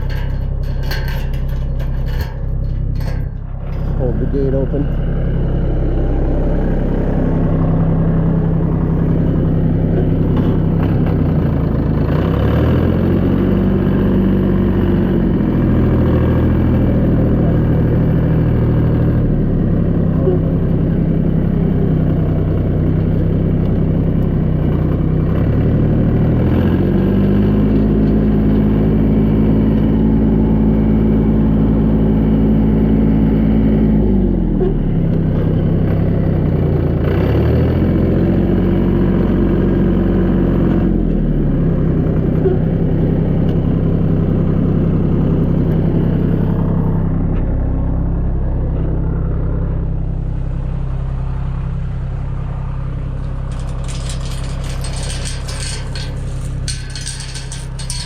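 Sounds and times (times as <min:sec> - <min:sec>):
tractor engine revving: 0:00.0 - 0:22.0.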